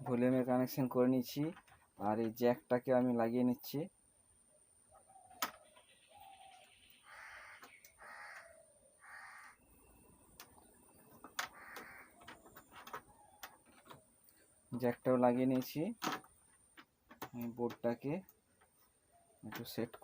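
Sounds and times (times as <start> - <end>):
faint harsh bird calls: 4.3 - 14.8, 18.4 - 19.9.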